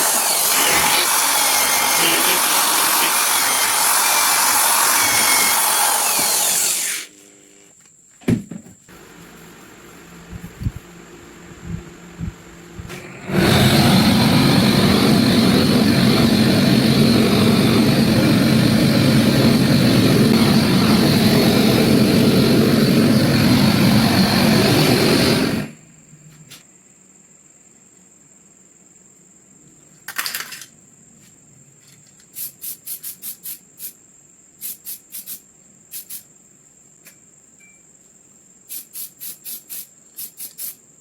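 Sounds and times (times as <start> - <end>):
power tool running: 0.0 - 7.6, 12.8 - 25.8.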